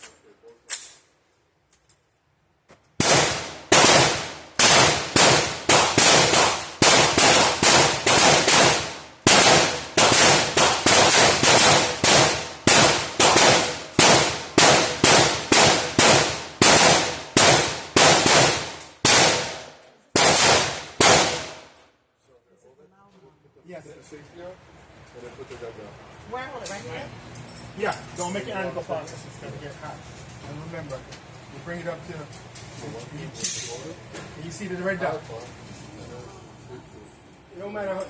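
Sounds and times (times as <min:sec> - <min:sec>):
gunshots: 0:03.0 - 0:21.6.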